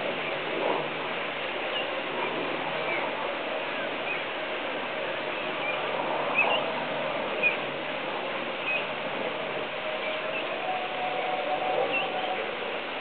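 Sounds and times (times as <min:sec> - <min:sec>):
steady background hum: 0:00.0 - 0:13.0
small birds chirping: 0:08.6 - 0:08.9.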